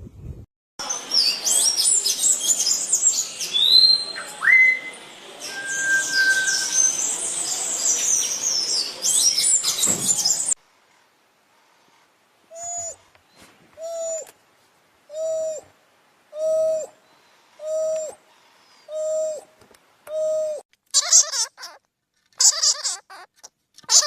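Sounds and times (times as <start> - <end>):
songbirds chirping and whistling: 0.8 - 10.6, 12.5 - 14.4, 15.1 - 15.7, 16.3 - 20.6.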